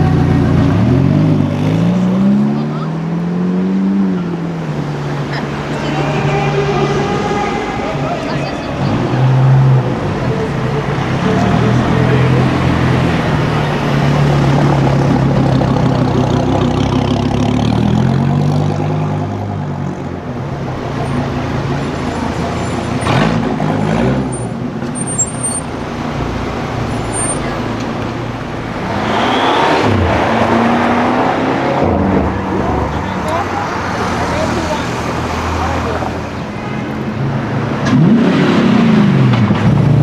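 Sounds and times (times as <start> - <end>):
vehicles passing: 0.0 - 40.0
car engine running: 4.2 - 17.7, 20.0 - 30.3, 32.5 - 38.9.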